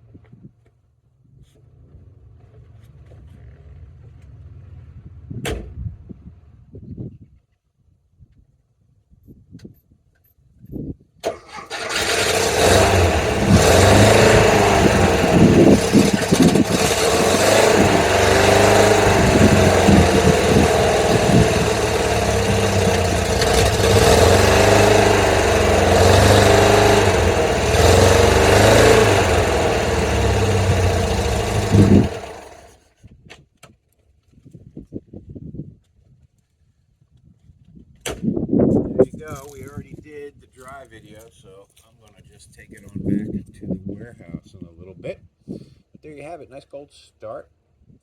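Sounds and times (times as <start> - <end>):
air-cooled engine revving unevenly: 11.6 - 32.7.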